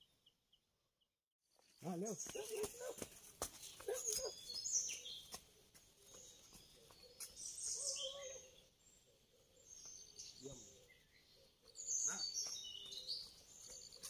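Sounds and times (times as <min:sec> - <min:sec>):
faint high bird chirps: 0:06.0 - 0:14.0.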